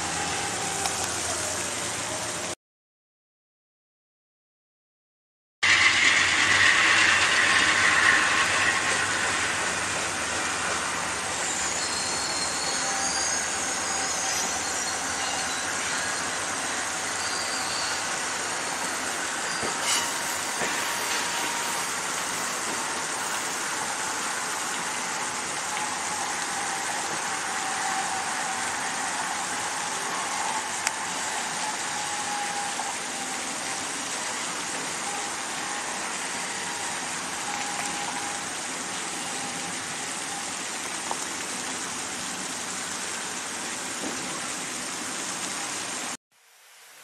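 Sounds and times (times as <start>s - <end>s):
faint whine falling in pitch: 5.6s - 41.3s
passenger train rolling away: 5.6s - 46.1s.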